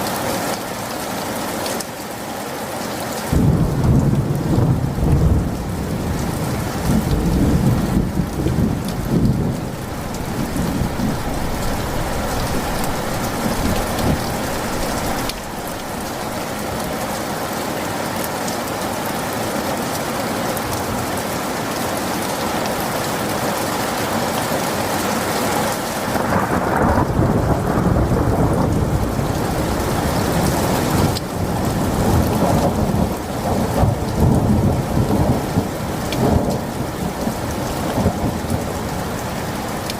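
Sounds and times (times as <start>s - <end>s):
rain falling: 0.0s - 39.9s
thunder rumbling: 3.3s - 17.5s, 25.8s - 37.4s.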